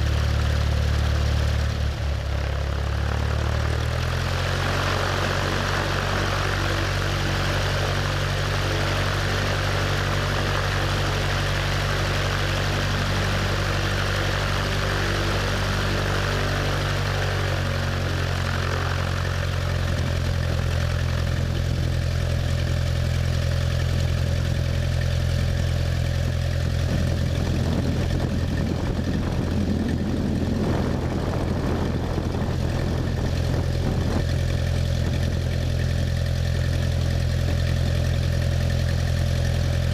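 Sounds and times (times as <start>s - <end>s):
propeller plane engine running: 0.0s - 39.9s
rough rushing noise: 26.7s - 35.3s.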